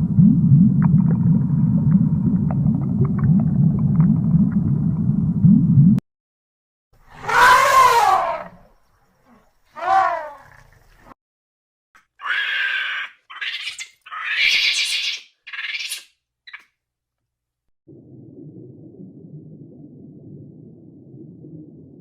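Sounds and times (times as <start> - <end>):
animal wailing calls: 7.1 - 8.6, 9.8 - 10.5
harsh high-pitched animal calls: 7.1 - 8.6, 9.8 - 10.6, 12.1 - 16.6.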